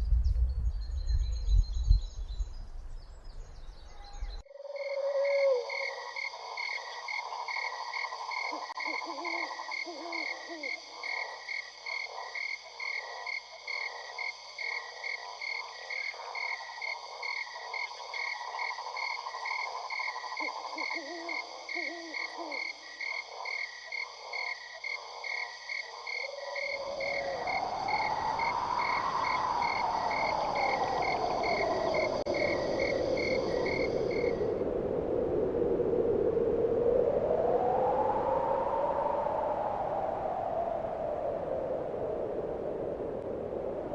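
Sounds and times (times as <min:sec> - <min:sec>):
frog-like calls pulsing: 0:04.1 - 0:34.6.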